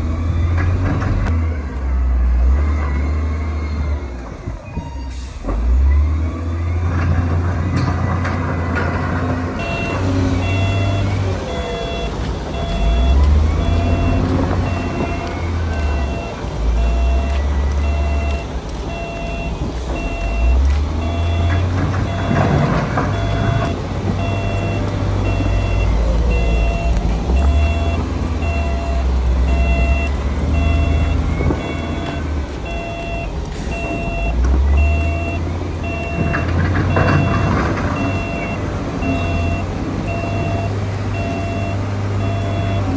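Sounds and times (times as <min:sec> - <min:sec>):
diesel engine of earthmoving machine: 0:00.0 - 0:42.9
reversing alarm beeping: 0:09.6 - 0:42.9.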